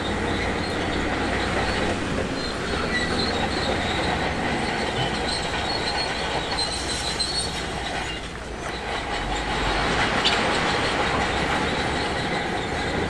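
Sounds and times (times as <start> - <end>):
bulldozer tracks squealing and clanking: 0.0 - 13.0.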